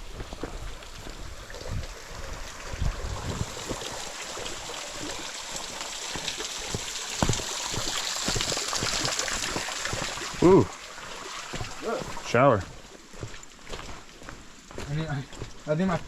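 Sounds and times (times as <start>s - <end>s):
falling water hissing: 0.1s - 16.0s.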